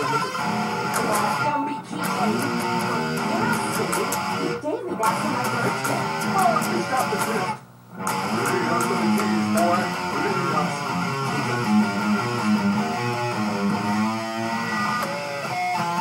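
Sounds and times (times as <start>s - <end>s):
electric guitar playing: 0.0s - 16.0s.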